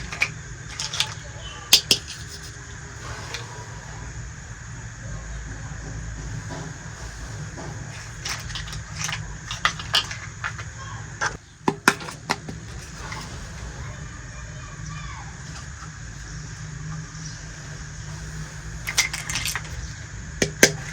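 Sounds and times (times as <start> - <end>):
toy pieces clicking and tapping: 0.0 - 2.6, 7.9 - 10.7, 11.7 - 13.1, 18.9 - 20.9.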